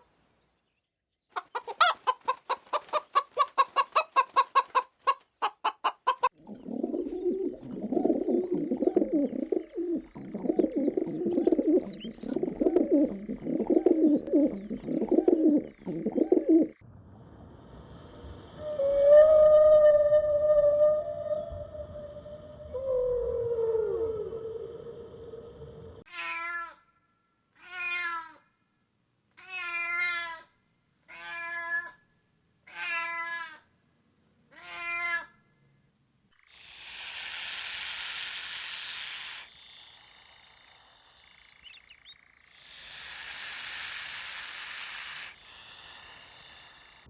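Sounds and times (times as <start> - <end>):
cat meowing: 26.1 - 26.8, 27.6 - 28.4, 29.4 - 30.5
cat hissing: 36.5 - 41.6, 42.5 - 47.0.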